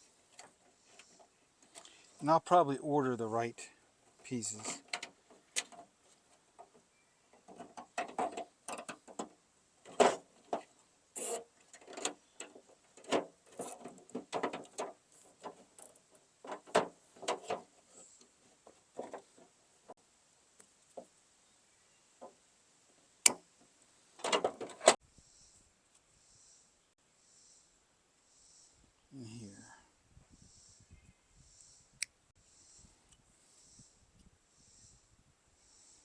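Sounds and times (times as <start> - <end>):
parts clicking and rattling: 0.2 - 2.0, 4.0 - 19.6, 24.2 - 25.0.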